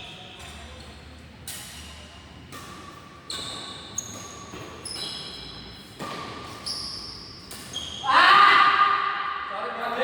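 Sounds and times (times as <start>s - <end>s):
racket hitting shuttlecock: 1.4s - 7.8s
shoe squeaks: 2.8s - 8.4s.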